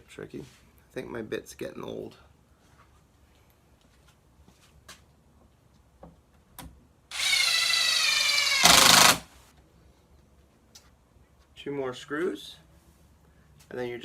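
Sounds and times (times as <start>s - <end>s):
impact driver driving a screw: 7.1s - 9.3s.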